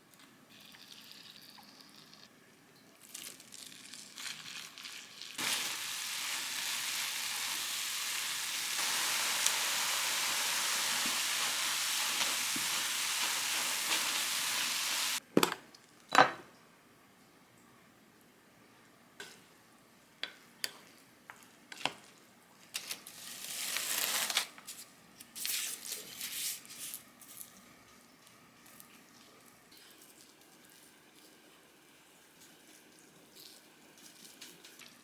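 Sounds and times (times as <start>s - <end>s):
food sizzling in frying pan: 4.2s - 15.2s.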